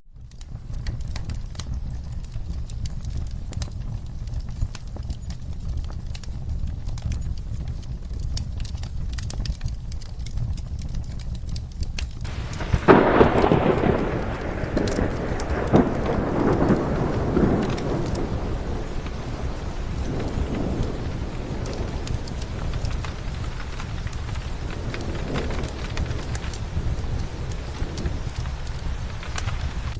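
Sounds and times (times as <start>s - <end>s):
fire crackling: 0.0s - 29.9s
steady rain: 0.0s - 29.9s
thunderclap rolling: 12.2s - 29.9s.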